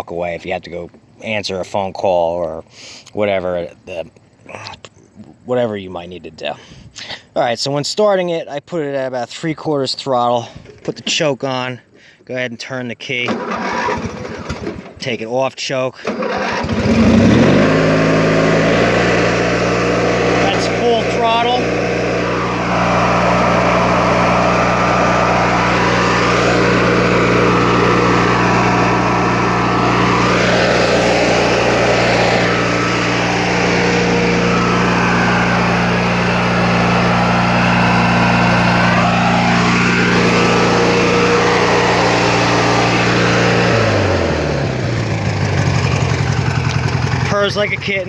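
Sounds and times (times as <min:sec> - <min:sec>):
garden tractor engine running: 0:13.2 - 0:15.2, 0:16.0 - 0:48.0.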